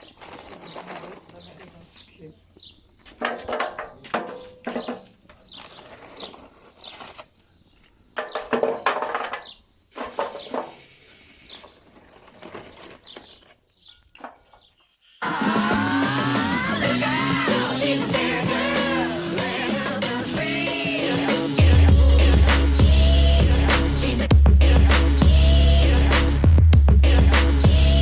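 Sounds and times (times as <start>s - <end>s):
small birds chirping: 0.0s - 15.2s
irregular loud sounds: 15.2s - 28.0s
music: 15.2s - 28.0s.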